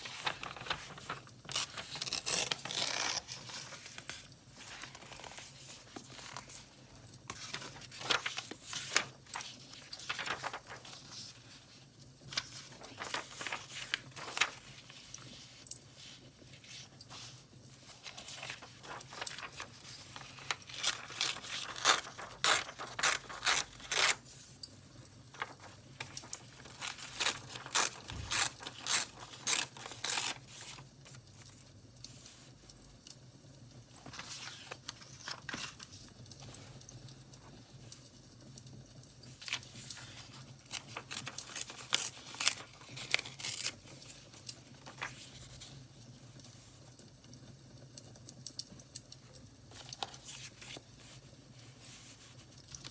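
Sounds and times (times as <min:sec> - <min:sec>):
paper tearing and crinkling: 0:00.0 - 0:24.5, 0:25.4 - 0:31.6, 0:34.0 - 0:36.7, 0:39.3 - 0:45.8, 0:49.7 - 0:52.9.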